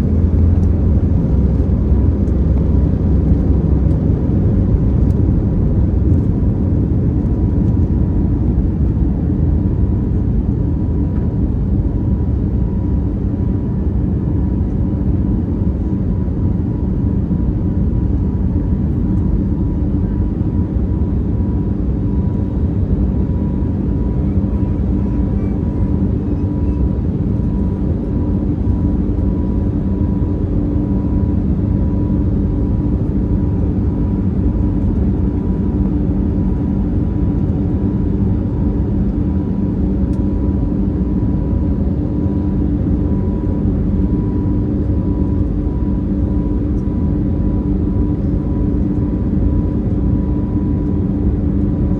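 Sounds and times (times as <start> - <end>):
jet engines rumbling: 0.0 - 13.9, 17.0 - 51.8.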